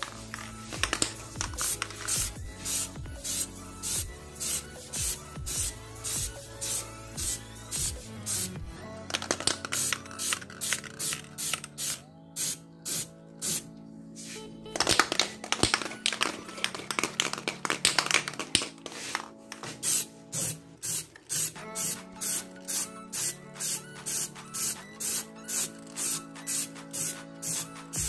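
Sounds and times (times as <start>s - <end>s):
electronic music with crisp beat: 0.0s - 28.0s
spray paint can hissing: 0.4s - 14.4s, 19.8s - 28.0s.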